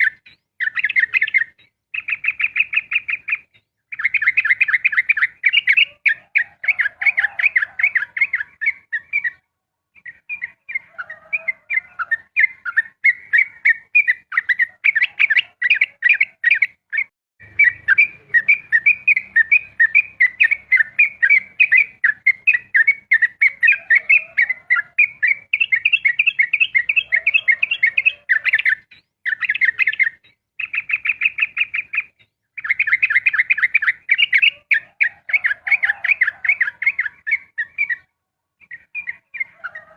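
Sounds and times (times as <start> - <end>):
bird singing rapid chirps: 0.0 - 39.9.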